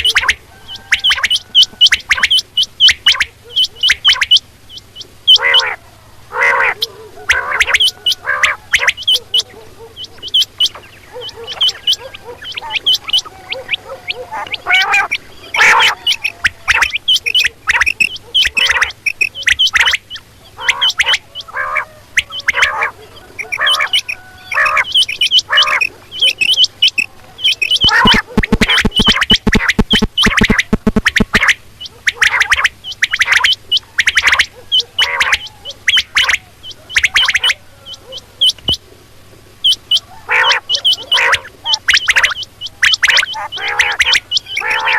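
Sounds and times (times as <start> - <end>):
faint steady hum: 0.0 - 44.9
quail calling: 0.0 - 44.9.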